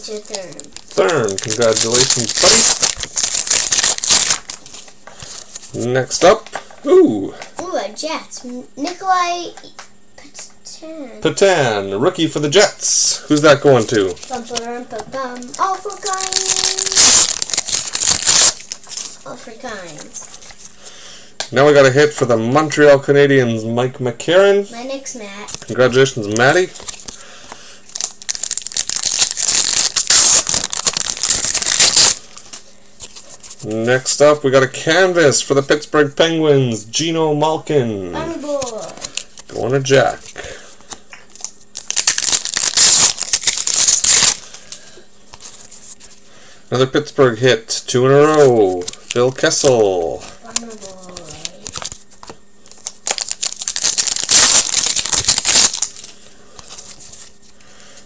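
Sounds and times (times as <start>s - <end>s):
foil wrapper crinkling: 0.0s - 5.9s, 13.5s - 20.8s, 25.5s - 33.8s, 38.3s - 46.2s, 48.2s - 57.6s.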